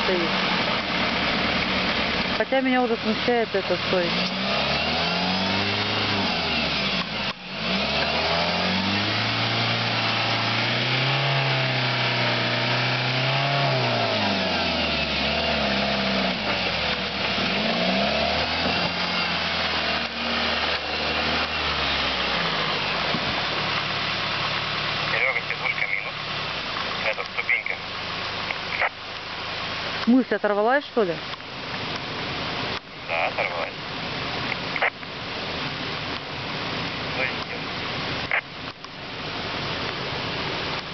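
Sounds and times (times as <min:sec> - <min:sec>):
car engine revving: 0:00.0 - 0:30.1.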